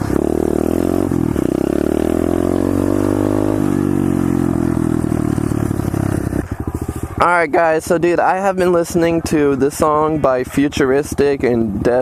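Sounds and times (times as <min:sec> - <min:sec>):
small motorbike engine revving: 0:00.0 - 0:07.1.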